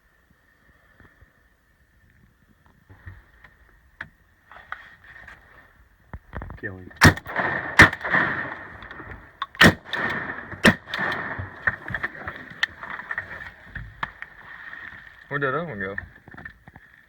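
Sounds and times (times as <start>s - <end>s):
shotgun shots: 7.0s - 13.0s.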